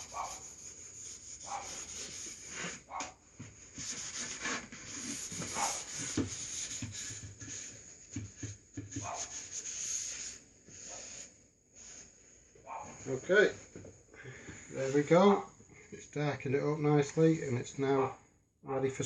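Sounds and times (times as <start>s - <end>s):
cloth rag rubbing on wood: 0.0s - 3.0s, 3.7s - 13.6s, 14.7s - 15.4s.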